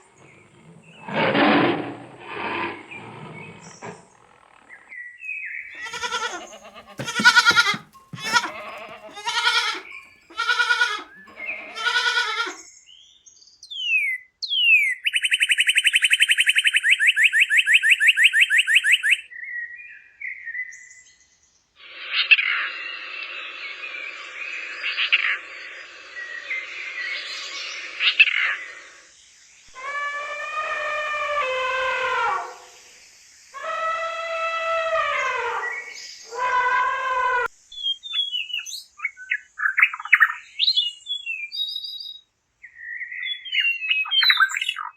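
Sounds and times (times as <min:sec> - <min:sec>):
animal calls falling in pitch: 0:05.8 - 0:09.8, 0:10.4 - 0:11.1
short repeated animal calls: 0:05.8 - 0:12.6.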